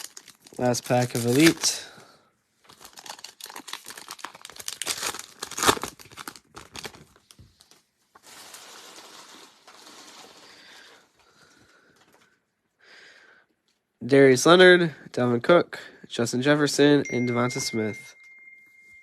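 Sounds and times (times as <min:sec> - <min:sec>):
wrapper tearing: 0:00.0 - 0:01.8, 0:02.7 - 0:11.0
wrapper crinkling: 0:00.0 - 0:01.9, 0:02.6 - 0:11.0.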